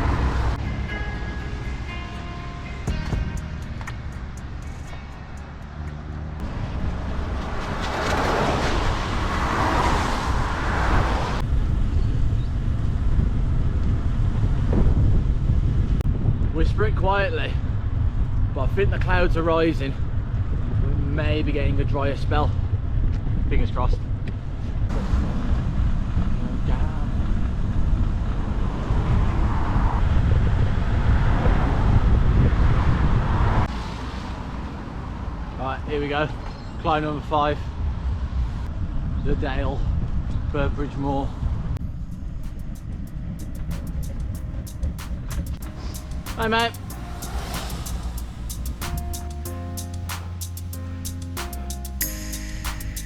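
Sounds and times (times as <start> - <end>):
wind rumble on microphone: 6.3 - 35.6, 36.4 - 49.5
rushing hiss: 42.3 - 53.0.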